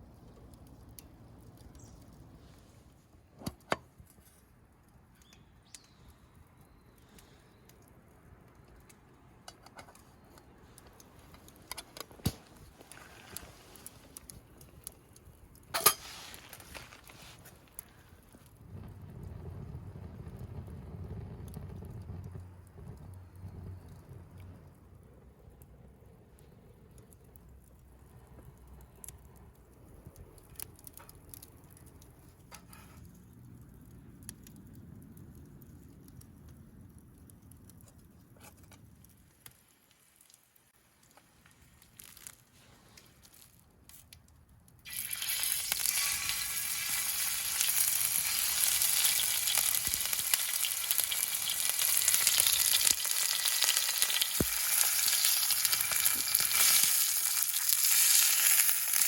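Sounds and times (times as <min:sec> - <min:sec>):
faint low rumble: 0:16.7 - 0:39.5
food sizzling in a pan: 0:44.9 - 0:59.0.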